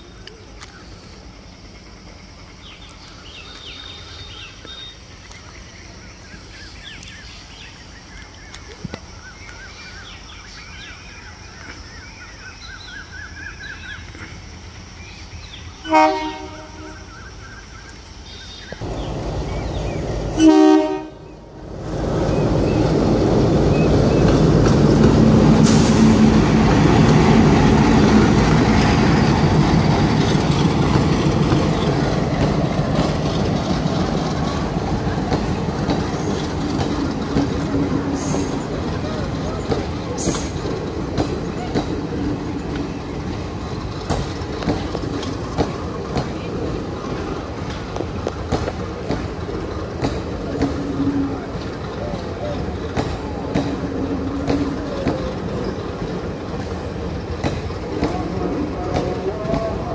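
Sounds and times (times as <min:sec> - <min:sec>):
train rumble and wheel clatter: 0:00.0 - 0:59.9
train horn: 0:15.8 - 0:17.1, 0:20.3 - 0:21.4.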